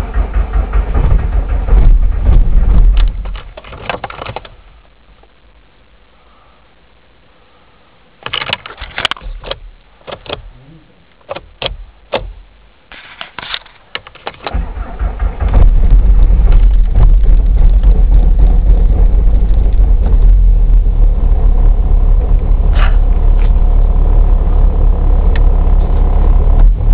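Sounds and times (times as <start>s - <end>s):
diesel engine running: 0.0s - 3.7s, 14.5s - 26.9s
clicks and knocks: 0.8s - 4.6s, 8.2s - 10.5s, 11.2s - 12.4s, 13.0s - 14.5s.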